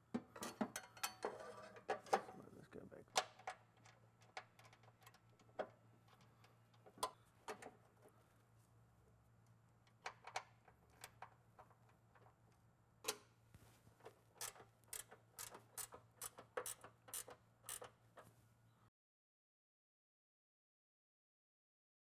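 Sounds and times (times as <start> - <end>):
metallic clicks of hand tools: 14.4 - 18.0.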